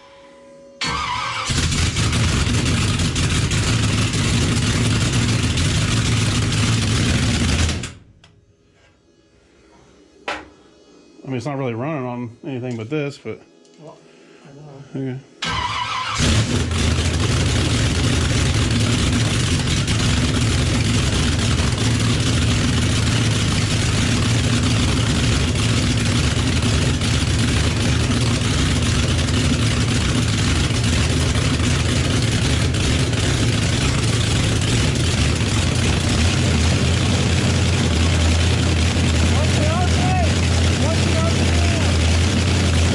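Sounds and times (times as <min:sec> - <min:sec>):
car engine running: 0:00.8 - 0:08.1, 0:16.1 - 0:42.9.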